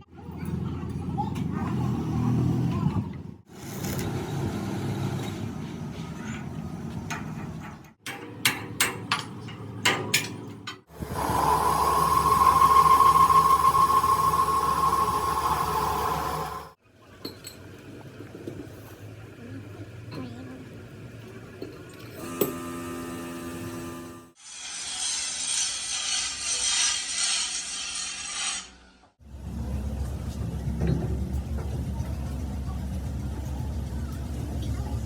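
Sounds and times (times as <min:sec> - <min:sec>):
low machine noise: 0:10.9 - 0:16.8, 0:29.2 - 0:35.0.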